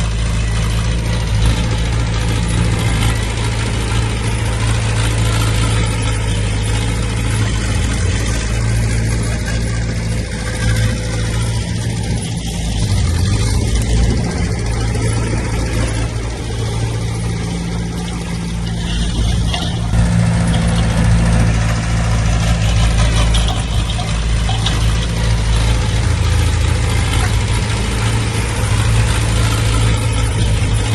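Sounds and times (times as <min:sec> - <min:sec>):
heavy diesel engine droning: 0:00.0 - 0:30.9.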